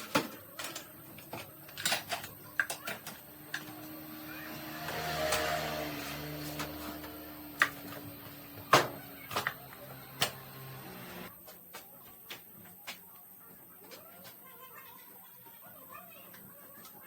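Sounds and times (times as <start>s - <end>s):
small machine humming: 0.7s - 11.3s.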